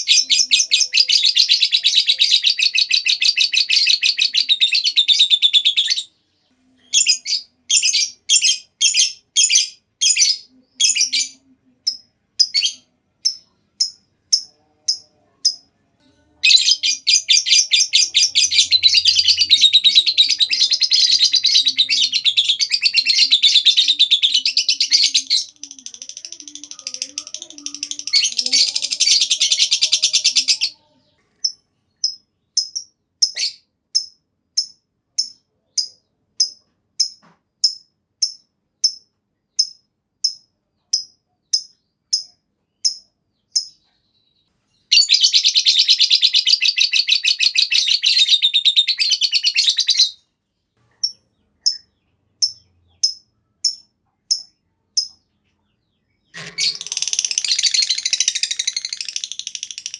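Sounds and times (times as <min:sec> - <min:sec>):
bird shrill chattering song: 0:16.4 - 0:30.8, 0:44.9 - 0:50.2, 0:56.2 - 0:59.9
bird sharp chirps: 0:50.9 - 0:59.9.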